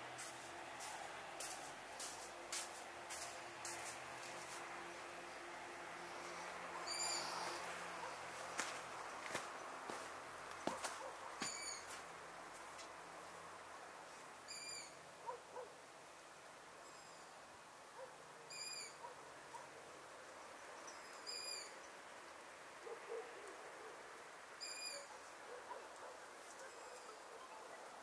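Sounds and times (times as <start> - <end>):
faint steady hiss: 0.0 - 28.0
night bird calling: 6.8 - 8.2, 11.0 - 12.0, 14.5 - 15.0, 18.5 - 19.1, 21.0 - 21.8, 24.6 - 25.9.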